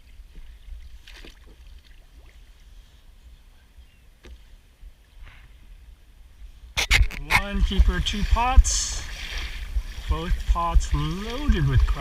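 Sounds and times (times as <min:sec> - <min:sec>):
steady low rumble: 0:06.3 - 0:12.0.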